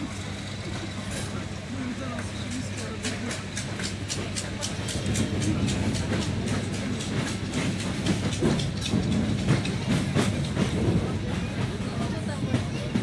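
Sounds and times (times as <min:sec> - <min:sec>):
train rumbling past: 0:00.0 - 0:13.0
wheels clicking over rail joints: 0:00.5 - 0:13.0.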